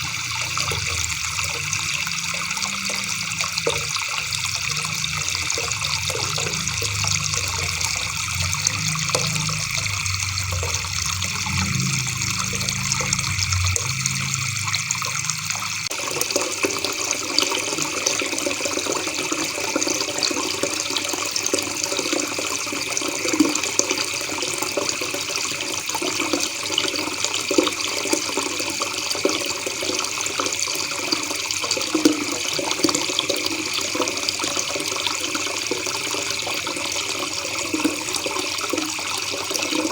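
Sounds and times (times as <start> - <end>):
low hum: 0.0 - 15.9.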